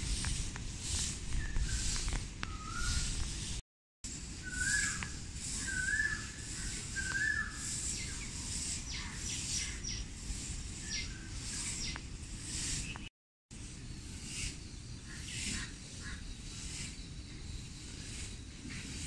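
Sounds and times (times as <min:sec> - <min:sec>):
whistled bird phrase: 0:01.4 - 0:03.2, 0:04.4 - 0:08.3
high bird chirps: 0:04.4 - 0:13.1.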